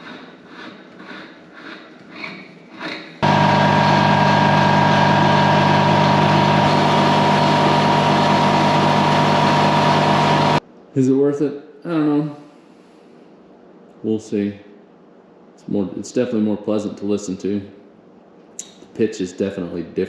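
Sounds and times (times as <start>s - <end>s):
piston air compressor running: 3.2s - 10.6s.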